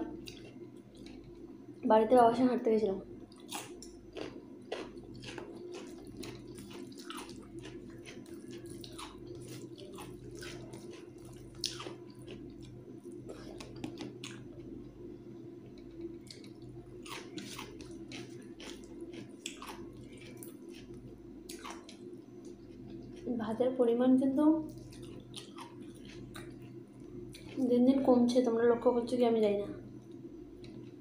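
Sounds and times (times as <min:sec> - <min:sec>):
steady low hum: 0:00.0 - 0:31.0
wet chewing: 0:00.2 - 0:01.4, 0:03.3 - 0:14.8, 0:15.7 - 0:23.3, 0:24.7 - 0:27.7.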